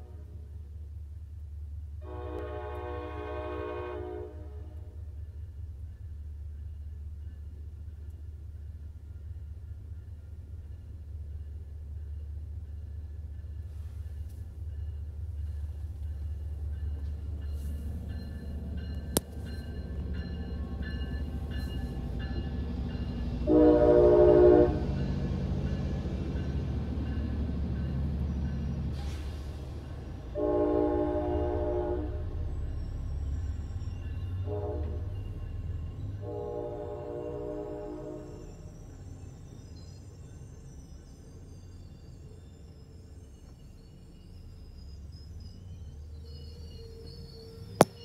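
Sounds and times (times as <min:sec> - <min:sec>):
diesel train rumbling past: 0:00.0 - 0:48.0
locomotive air horn blasts: 0:02.0 - 0:05.0, 0:23.4 - 0:25.0, 0:30.4 - 0:32.4, 0:34.5 - 0:35.1, 0:36.2 - 0:38.3.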